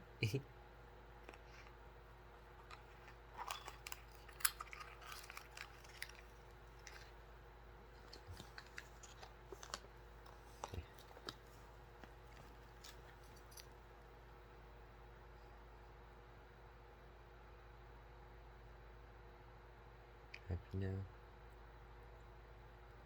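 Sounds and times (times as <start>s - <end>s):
bird beak crunching and clicking: 2.6s - 7.2s.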